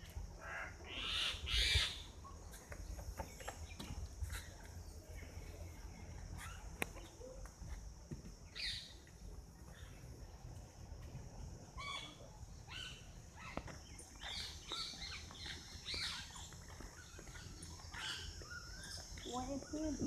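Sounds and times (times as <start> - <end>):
birds chirping: 8.4 - 20.0.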